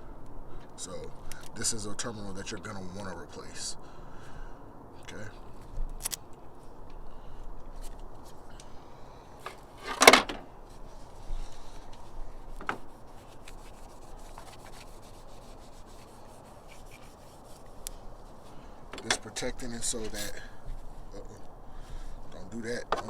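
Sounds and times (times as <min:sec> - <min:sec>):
tools scraping battery terminal: 0:18.9 - 0:20.4.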